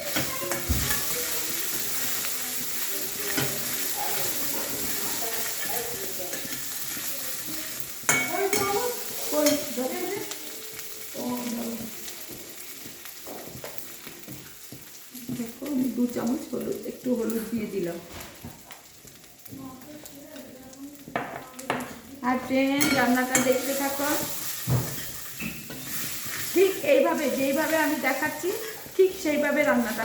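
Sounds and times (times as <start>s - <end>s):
spatula clacking against pan: 0.0s - 10.9s, 22.8s - 30.0s
spices sizzling in hot oil: 0.0s - 30.0s.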